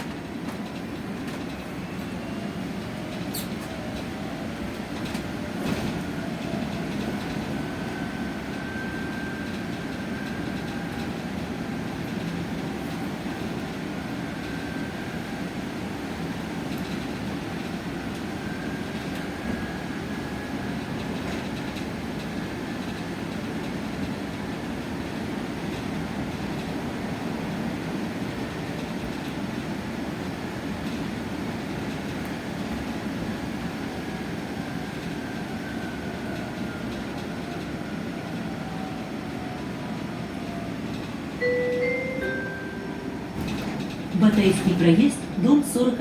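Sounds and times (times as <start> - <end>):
bus road and running hum: 0.0 - 46.0
two-tone stop announcement chime: 41.4 - 46.0.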